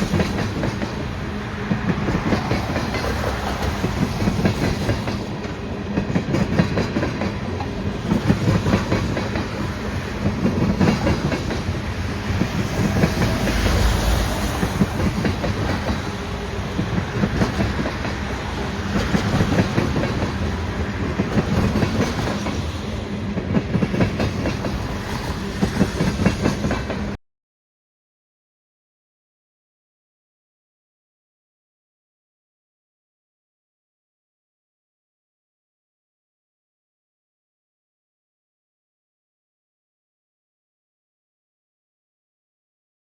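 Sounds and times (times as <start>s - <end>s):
train wheels clickety-clack: 0.0s - 27.2s.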